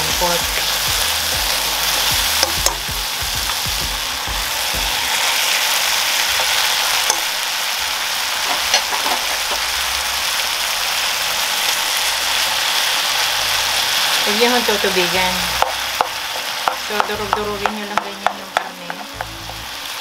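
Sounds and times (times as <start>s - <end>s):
food sizzling in a frying pan: 0.0s - 20.0s
utensils clicking against pan: 8.4s - 9.6s.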